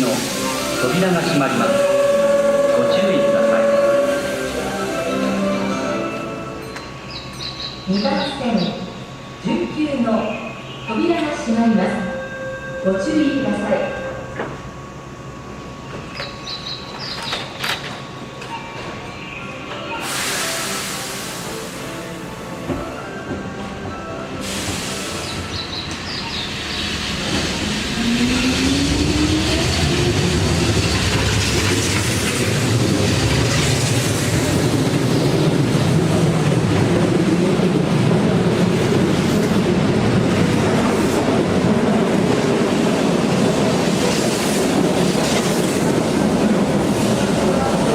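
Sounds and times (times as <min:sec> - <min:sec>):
electric train motor whine: 0:00.4 - 0:07.0.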